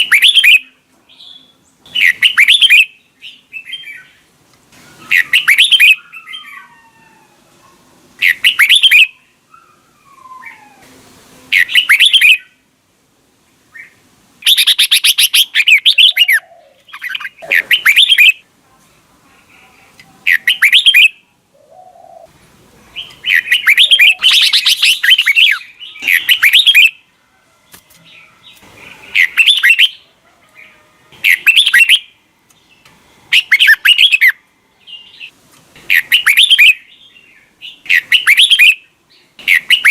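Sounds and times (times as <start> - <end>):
bulbul singing warbled phrases: 0.0 - 4.2, 5.0 - 6.5, 8.2 - 9.3, 11.5 - 12.6, 13.8 - 18.4, 19.4 - 22.3, 22.9 - 27.0, 28.5 - 32.2, 33.3 - 35.3, 35.9 - 39.9.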